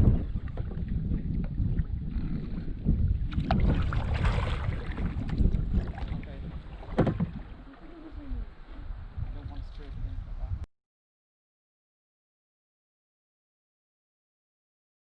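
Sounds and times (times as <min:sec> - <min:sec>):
wind rumbling on microphone: 0:00.0 - 0:10.7.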